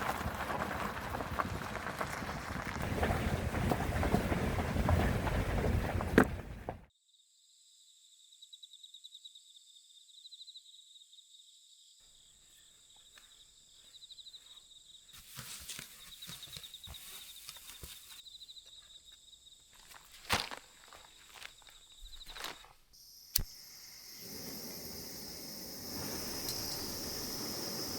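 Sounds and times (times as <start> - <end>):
insects trilling: 7.1 - 27.9
footsteps on a trail: 15.2 - 22.9.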